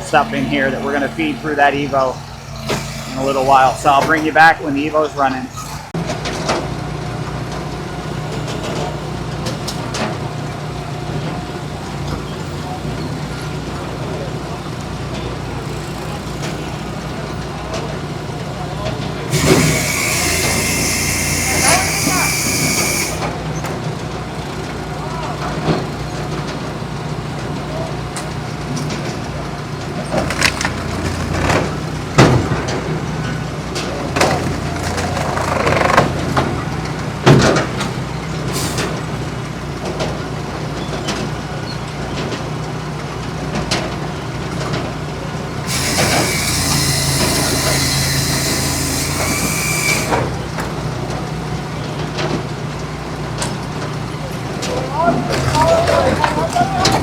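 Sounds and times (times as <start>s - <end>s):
engine drone: 0.0s - 57.0s
hiss: 19.3s - 23.3s, 38.6s - 39.0s, 45.7s - 50.3s.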